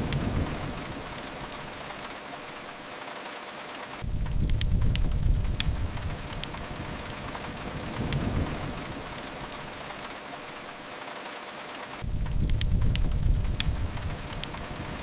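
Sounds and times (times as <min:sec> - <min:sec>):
steady rain: 0:00.0 - 0:15.0
wood fire crackling: 0:00.0 - 0:15.0
low rumble: 0:04.0 - 0:09.8, 0:12.0 - 0:15.0.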